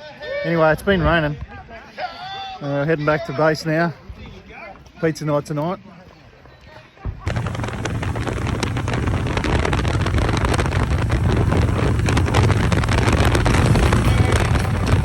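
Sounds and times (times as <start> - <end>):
wind buffeting microphone: 7.0 - 15.0
motorcycle engine running: 7.3 - 15.0.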